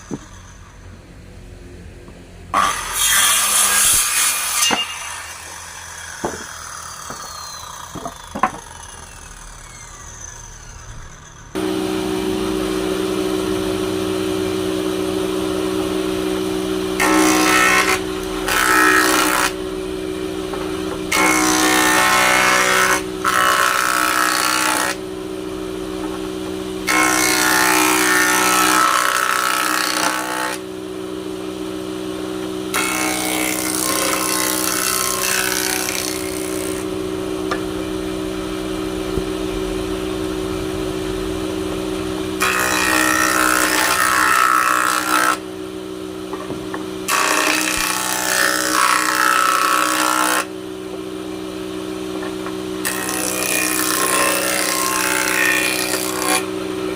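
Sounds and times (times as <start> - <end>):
power tool cutting wood: 0.0 - 1.0, 2.5 - 31.3, 32.0 - 51.1, 51.7 - 56.9
power tool motor humming: 4.7 - 16.0.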